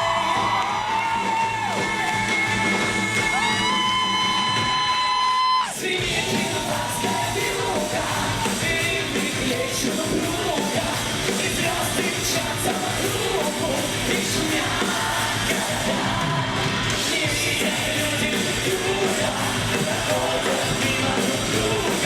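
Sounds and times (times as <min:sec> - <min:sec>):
live band music: 0:00.0 - 0:22.0
voices singing: 0:05.6 - 0:22.0.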